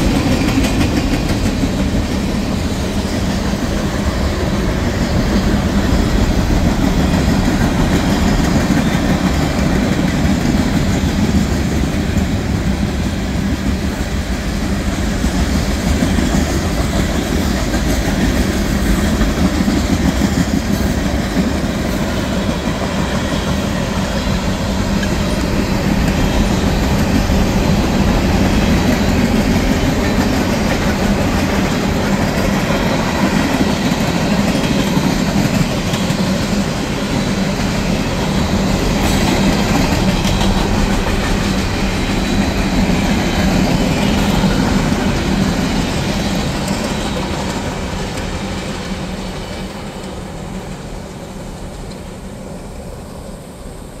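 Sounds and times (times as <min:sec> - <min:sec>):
wheels clicking over rail joints: 0:00.0 - 0:52.3
freight train rolling past: 0:00.0 - 0:54.0.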